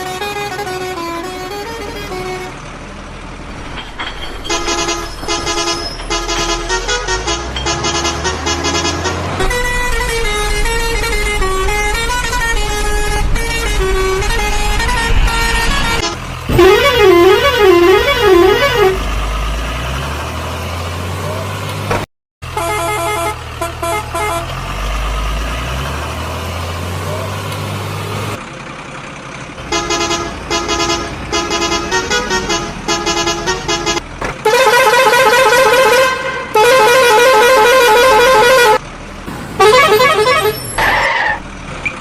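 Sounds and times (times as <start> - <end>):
electronic musical horn: 4.6 - 19.1, 29.7 - 38.8, 39.6 - 40.6.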